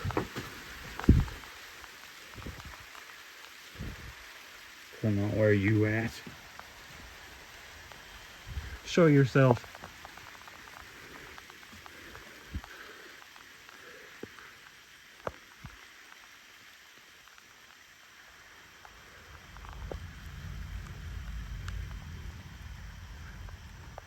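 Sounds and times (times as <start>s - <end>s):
light rain falling: 0.0s - 24.0s
low rumble: 18.8s - 24.0s.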